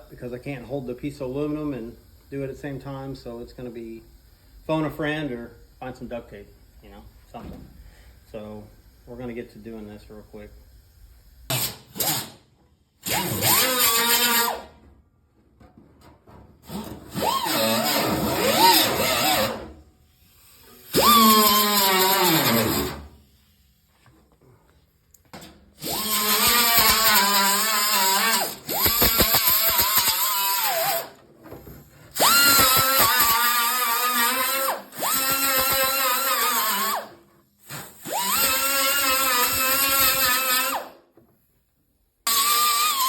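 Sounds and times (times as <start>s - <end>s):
electric grinder on sheet metal: 13.0s - 14.7s, 16.6s - 19.7s, 20.8s - 23.1s, 25.8s - 31.2s, 32.1s - 40.9s, 42.3s - 43.0s.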